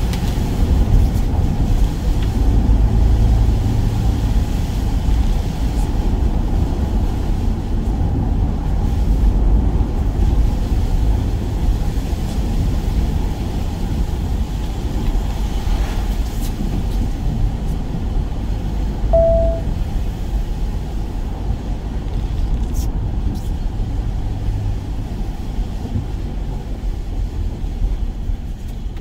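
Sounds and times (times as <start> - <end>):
van rumbling inside cab: 0.0 - 29.0
short beep: 19.1 - 19.7.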